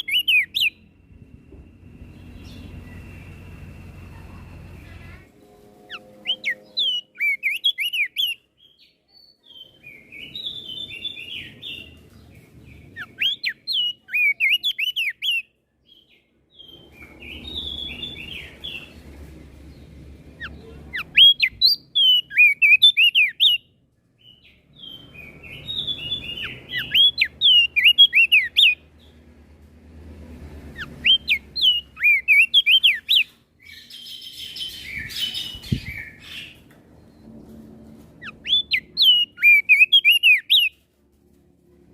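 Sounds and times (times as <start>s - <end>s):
bird singing whistled notes: 0.0s - 3.8s, 5.8s - 12.0s, 12.7s - 19.0s, 20.4s - 28.8s, 30.8s - 37.3s, 38.2s - 40.8s
faint low rumble: 0.7s - 7.2s.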